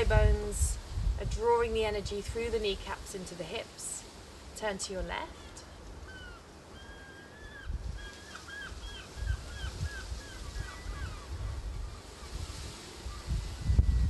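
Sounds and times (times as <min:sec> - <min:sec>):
wind buffeting microphone: 0:00.0 - 0:03.6, 0:07.4 - 0:14.0.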